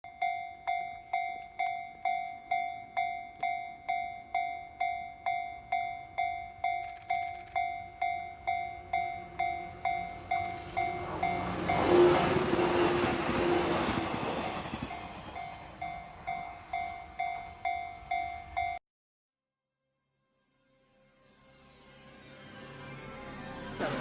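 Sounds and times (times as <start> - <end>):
crossing warning bell dinging: 0.0 - 18.8.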